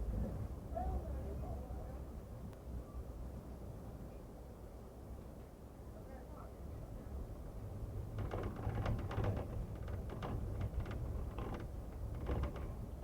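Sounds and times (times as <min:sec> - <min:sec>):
low rumble of running train: 0:00.0 - 0:13.0
train car creaks and rattles: 0:07.1 - 0:13.0.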